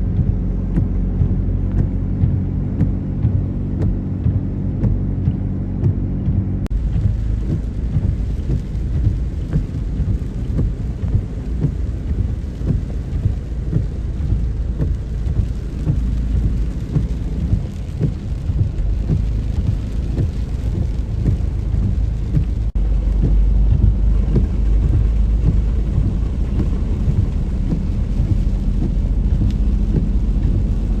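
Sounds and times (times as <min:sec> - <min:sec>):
low rumble: 0:00.0 - 0:31.0
dense rain: 0:06.7 - 0:31.0.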